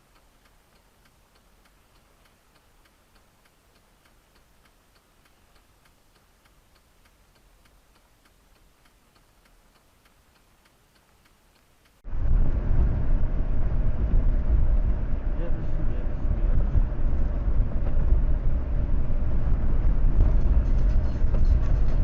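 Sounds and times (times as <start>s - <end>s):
faint steady ticking: 0.0s - 12.0s
vehicle and road noise: 0.0s - 22.0s.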